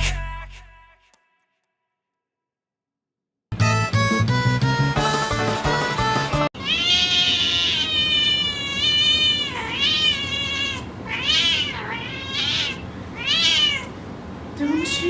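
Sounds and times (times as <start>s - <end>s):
cat meowing: 6.6s - 14.0s.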